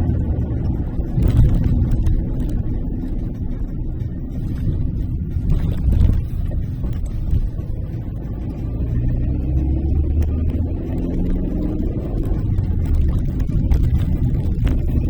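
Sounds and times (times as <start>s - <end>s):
car engine hum: 0.0s - 15.0s
car road rumble while driving: 0.0s - 15.0s.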